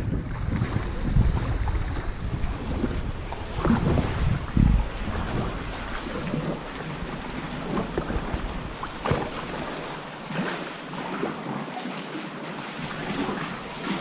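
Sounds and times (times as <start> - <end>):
wind buffeting microphone: 0.0 - 11.3
water splashing around kayak: 0.0 - 14.0.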